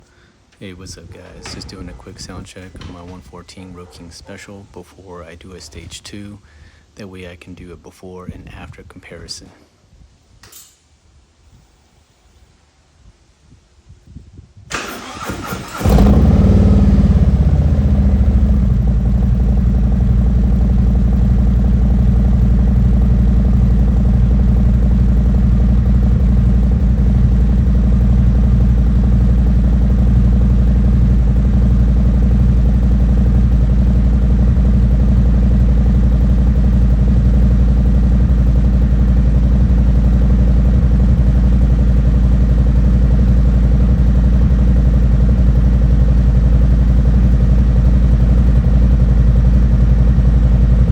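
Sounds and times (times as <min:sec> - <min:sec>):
motorcycle engine idling: 0:00.9 - 0:04.3, 0:15.0 - 0:50.9
starter cranking: 0:14.7 - 0:16.3.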